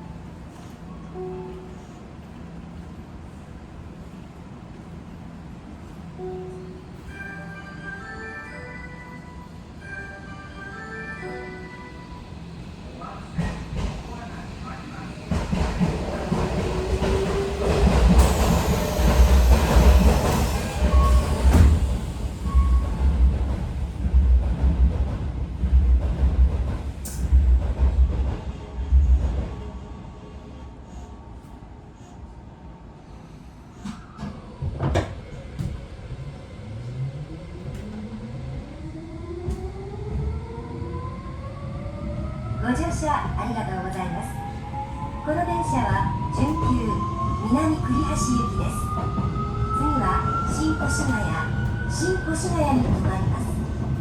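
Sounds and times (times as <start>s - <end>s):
train wheels rumbling on rail: 12.3s - 29.9s, 42.1s - 54.0s
train doors closing thuds: 15.3s - 28.2s, 33.8s - 36.0s.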